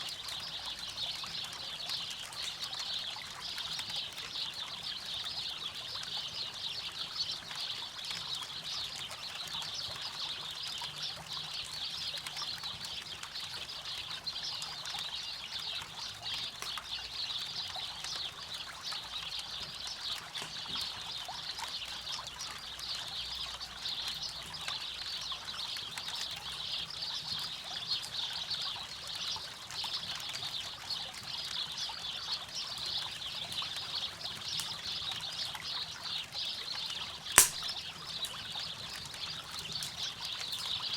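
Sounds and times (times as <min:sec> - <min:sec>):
campfire crackling: 0:37.4 - 0:38.5.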